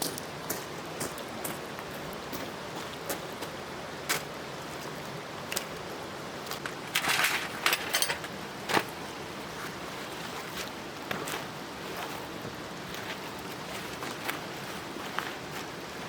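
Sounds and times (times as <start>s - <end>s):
outdoor hiss: 0.0s - 16.0s
objects clicking and knocking: 6.6s - 8.9s
rustling and clattering: 6.6s - 8.9s.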